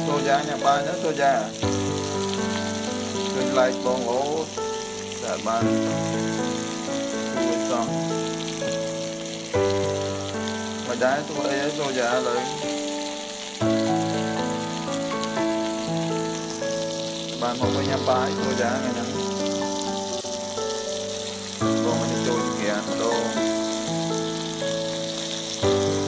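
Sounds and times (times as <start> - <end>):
background music of held chords: 0.0 - 26.0
chicken and onion sizzling: 0.0 - 26.0.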